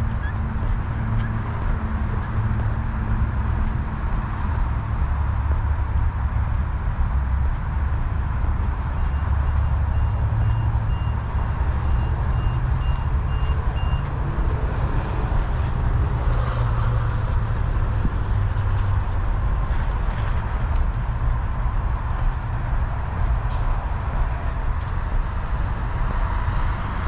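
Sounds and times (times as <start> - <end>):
vehicle reversing alarm beeping: 9.1 - 14.1.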